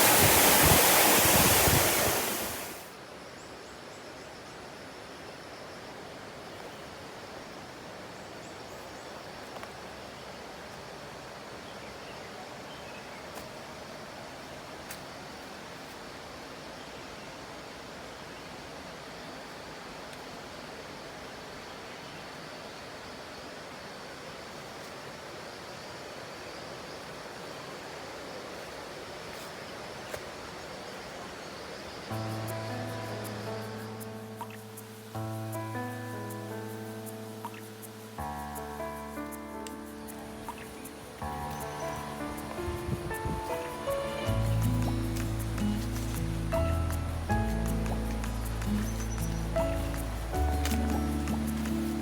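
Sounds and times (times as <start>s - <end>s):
waterfall rushing: 0.0s - 3.0s, 32.0s - 52.0s
outdoor background rush: 4.9s - 52.0s.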